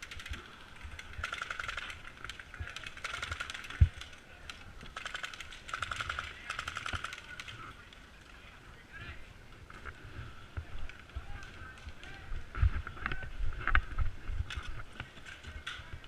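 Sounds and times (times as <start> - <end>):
airsoft guns firing bursts: 0.0 - 4.2, 4.8 - 7.6.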